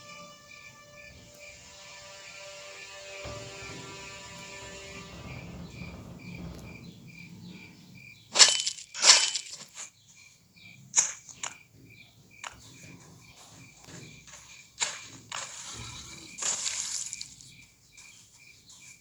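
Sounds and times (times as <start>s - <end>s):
dry leaves crunching underfoot: 8.4s - 9.9s, 16.2s - 17.6s.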